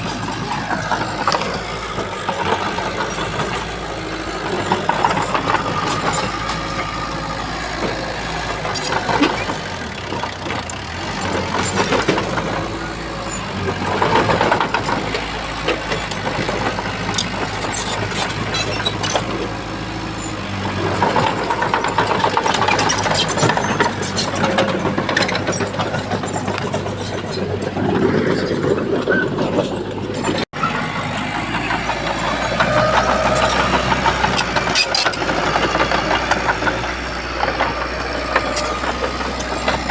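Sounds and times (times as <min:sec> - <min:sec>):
bulldozer diesel engine working: 0:00.0 - 0:39.9
metal clanks: 0:00.0 - 0:39.9.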